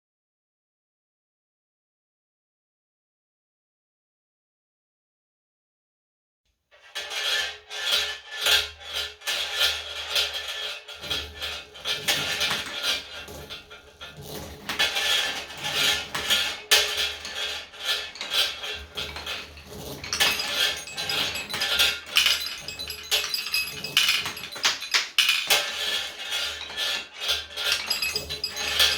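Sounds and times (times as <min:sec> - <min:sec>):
marbles rolling and clinking: 0:18.2 - 0:28.9.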